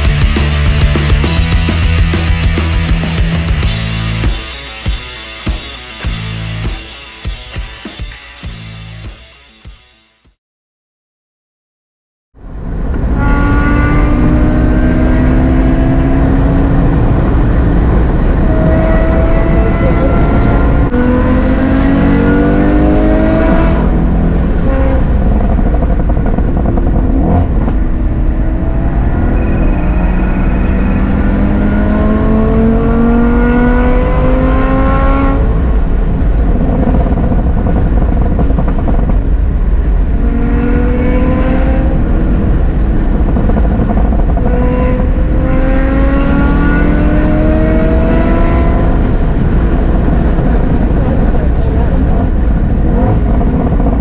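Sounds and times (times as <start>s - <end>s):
car engine accelerating: 0.0s - 9.1s, 12.4s - 54.0s
low road rumble: 0.0s - 9.6s, 12.4s - 54.0s
high steady tone: 28.4s - 34.4s.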